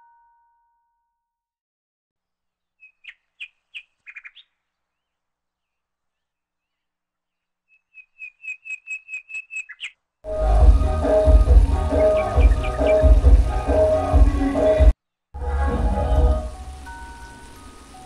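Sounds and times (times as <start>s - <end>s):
small bird chirping: 2.6s - 10.0s.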